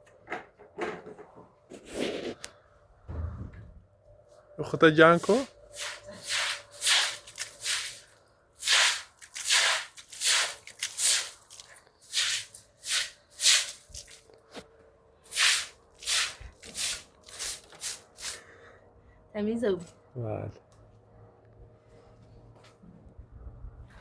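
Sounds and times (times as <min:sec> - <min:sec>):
brisk scrubbing strokes: 0:05.1 - 0:14.2, 0:15.2 - 0:18.5.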